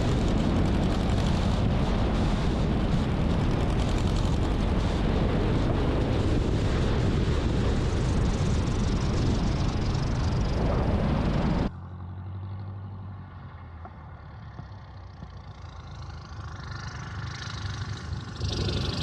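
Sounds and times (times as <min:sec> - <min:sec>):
wind noise: 0:00.0 - 0:11.7, 0:17.8 - 0:19.0
light aircraft engine: 0:00.0 - 0:19.0.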